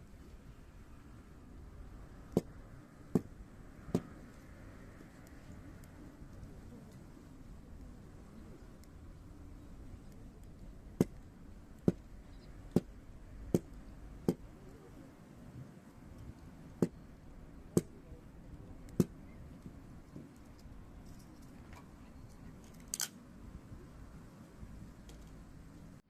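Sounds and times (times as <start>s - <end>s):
fire crackling pops: 2.1s - 21.5s.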